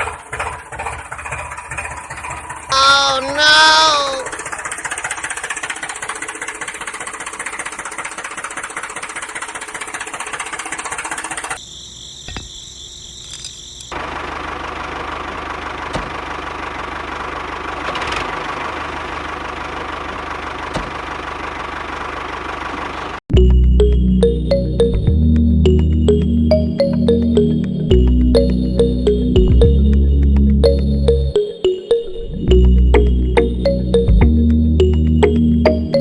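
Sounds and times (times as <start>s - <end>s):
small motor clattering: 4.4s - 11.6s.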